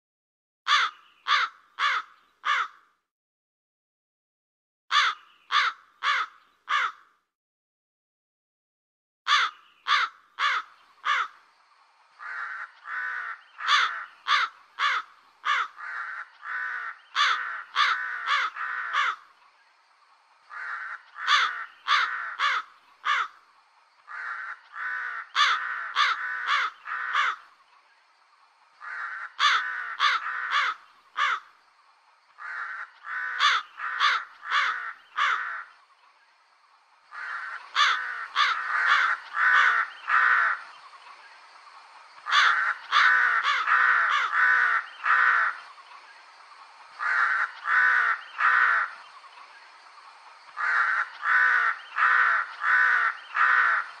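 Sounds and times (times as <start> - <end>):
crows cawing: 0.7 - 3.0, 4.9 - 7.2, 9.3 - 11.4, 12.2 - 19.4, 20.5 - 23.4, 24.0 - 27.6, 28.8 - 31.6, 32.4 - 35.8, 37.1 - 40.7, 42.2 - 45.7, 47.0 - 49.0, 50.5 - 54.0
rough low crow calls: 0.7 - 3.0, 4.9 - 7.3, 9.3 - 11.5, 12.1 - 19.4, 20.2 - 27.6, 28.8 - 31.6, 32.3 - 35.8, 37.1 - 40.8, 42.2 - 45.7, 46.9 - 49.2, 50.5 - 54.0.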